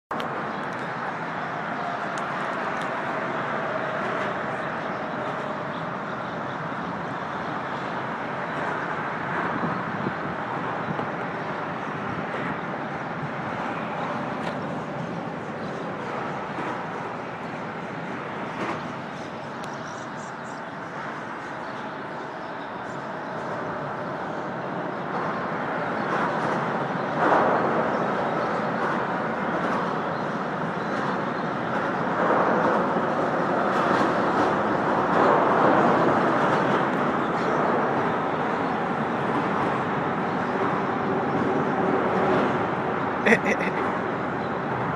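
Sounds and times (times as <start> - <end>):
highway traffic rushing: 0.1 - 44.9.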